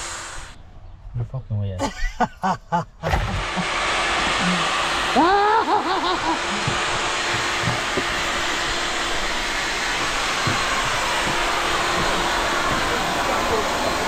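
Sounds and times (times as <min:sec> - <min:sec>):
steady rushing noise: 0:06.0 - 0:14.0.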